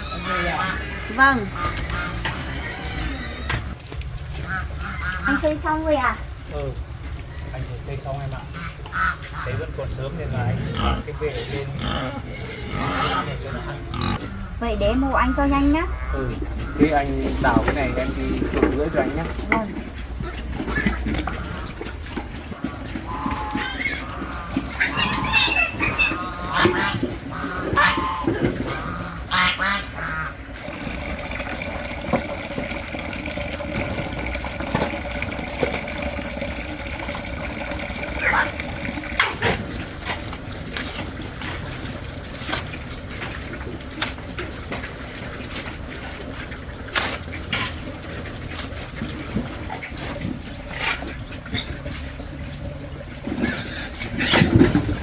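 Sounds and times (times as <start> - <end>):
waterfowl quacking and honking: 0.0 - 2.6, 23.0 - 31.8.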